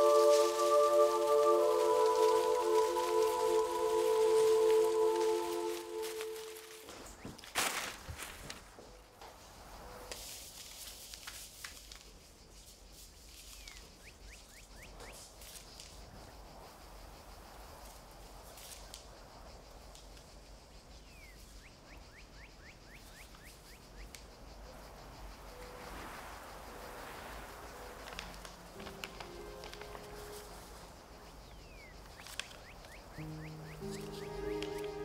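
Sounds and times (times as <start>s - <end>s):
bird calling: 0.0s - 7.4s, 26.7s - 35.0s
paper envelopes rustling: 0.0s - 8.8s, 27.8s - 31.1s, 32.1s - 35.0s
faint background hiss: 0.0s - 35.0s.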